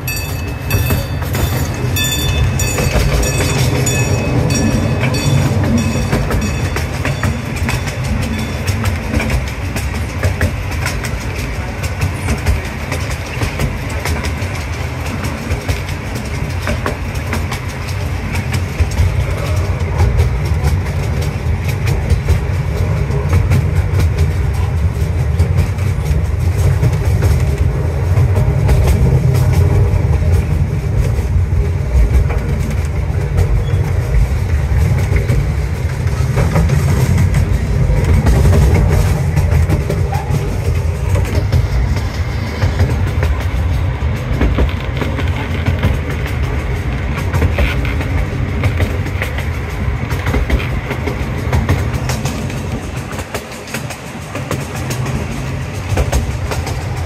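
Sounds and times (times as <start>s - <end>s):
level-crossing bell ringing: 0.0s - 9.5s
railway cars rumbling: 0.0s - 57.0s
wheels clicking over rail joints: 0.0s - 57.0s.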